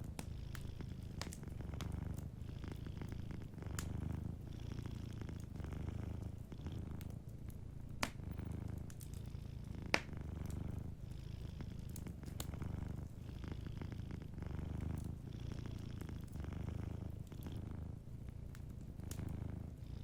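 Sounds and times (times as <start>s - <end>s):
fire crackle-pop: 0.0s - 2.3s, 3.4s - 4.4s, 5.3s - 11.1s, 11.7s - 13.1s, 18.4s - 19.5s
cat purring: 0.0s - 20.0s.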